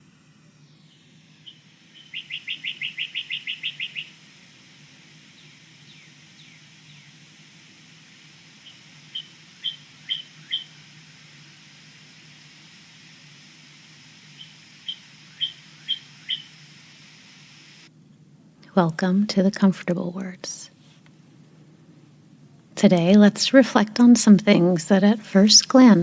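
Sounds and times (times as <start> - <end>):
bird chirping: 0.5 - 7.4, 8.3 - 12.4, 13.3 - 17.8.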